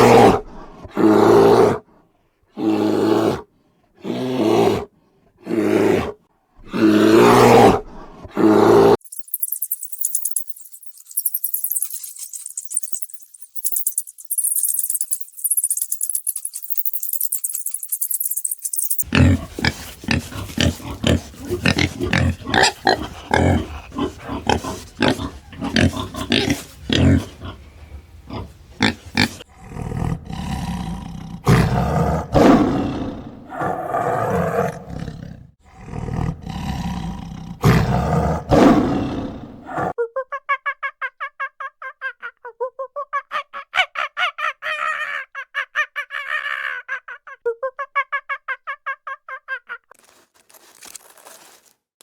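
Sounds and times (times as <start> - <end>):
animal grunting and growling: 2.6 - 9.0, 19.0 - 39.9.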